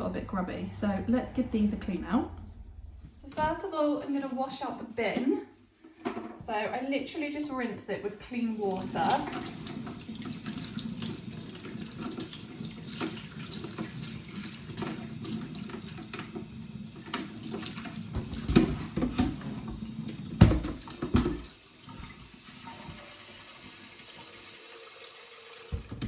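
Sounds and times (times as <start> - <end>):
tap water splashing into plastic bin: 8.7 - 23.2.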